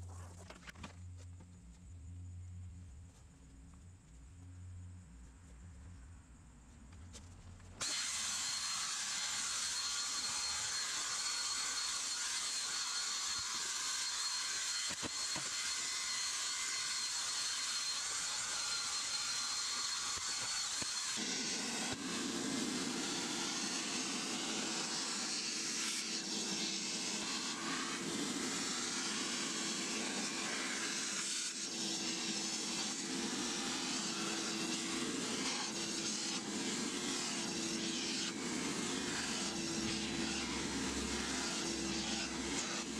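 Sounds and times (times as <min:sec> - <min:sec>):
drill spinning carpet brush: 0:07.8 - 0:42.9
carpet extractor suction: 0:17.6 - 0:42.9.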